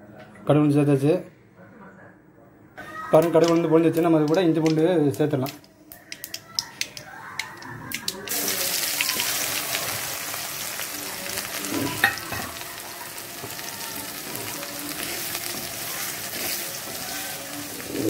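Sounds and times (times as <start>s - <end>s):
ginger and garlic sizzling in oil: 6.2s - 18.0s.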